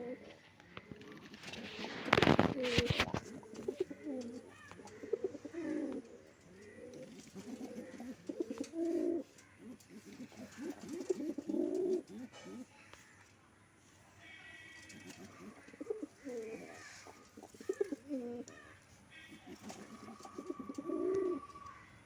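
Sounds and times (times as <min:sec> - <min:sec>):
pigeons cooing: 0:00.0 - 0:12.7, 0:14.6 - 0:22.0.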